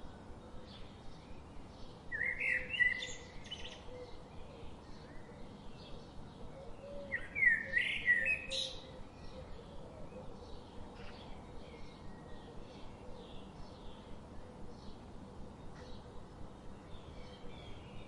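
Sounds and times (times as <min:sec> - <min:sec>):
faint bird chirps: 0:00.7 - 0:15.0.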